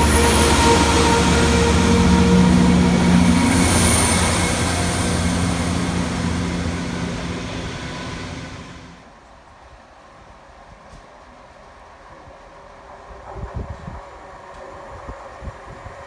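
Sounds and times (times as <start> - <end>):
diesel train passing: 0.0 - 9.0.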